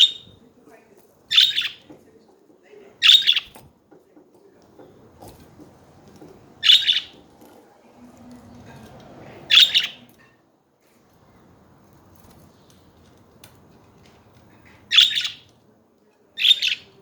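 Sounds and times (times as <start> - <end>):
budgerigar chirping: 0.0 - 0.2, 1.3 - 1.9, 3.0 - 3.6, 6.6 - 7.2, 9.5 - 10.0, 14.9 - 15.5, 16.4 - 17.0
faint background noise: 0.0 - 17.0.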